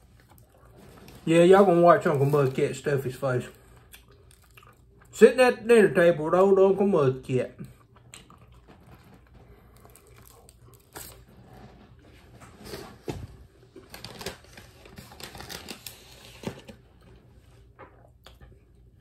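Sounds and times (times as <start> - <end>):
person chewing food: 0.0 - 1.2, 3.6 - 5.2, 7.6 - 11.7
crinkling rustles: 0.0 - 4.5, 8.2 - 17.7.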